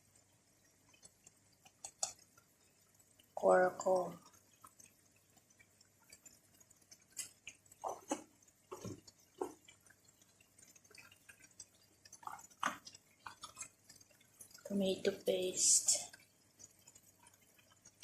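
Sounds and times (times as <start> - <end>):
liquid pops and drips: 0.0 - 14.8, 15.9 - 18.0.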